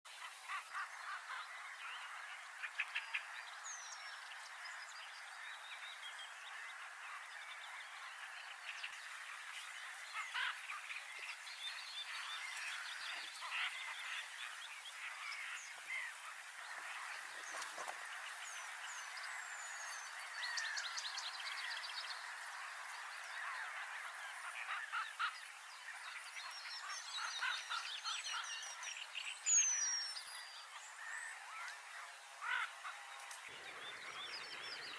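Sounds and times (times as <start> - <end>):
small birds chirping: 0.1 - 34.9.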